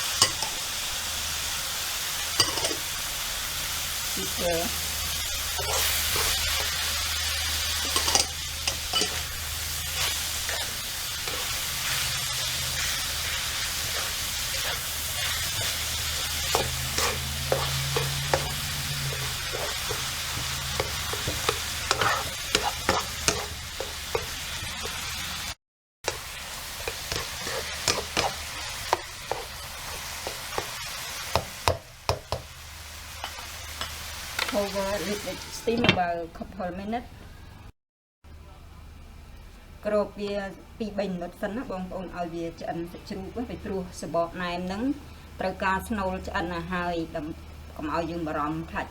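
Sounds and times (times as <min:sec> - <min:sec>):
meat sizzling in a pan: 0:00.0 - 0:35.6
spatula scraping a pan: 0:05.5 - 0:25.2, 0:26.1 - 0:31.4.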